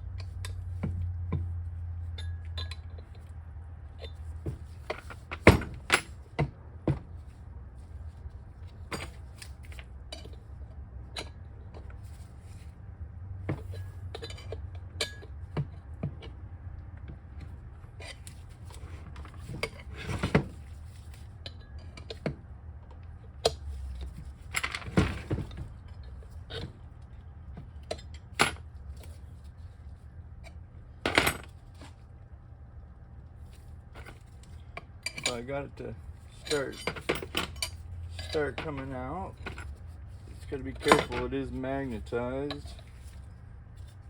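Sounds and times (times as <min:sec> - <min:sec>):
pry bars clinking on metal casing: 0:02.1 - 0:03.3, 0:34.1 - 0:39.7.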